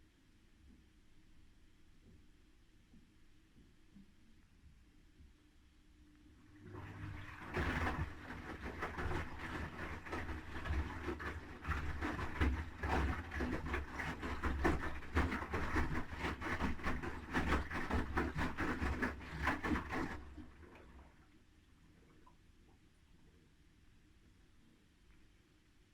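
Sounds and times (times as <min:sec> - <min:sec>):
washing machine motor hum: 0:06.4 - 0:21.1
clothes and water sloshing: 0:06.5 - 0:22.5.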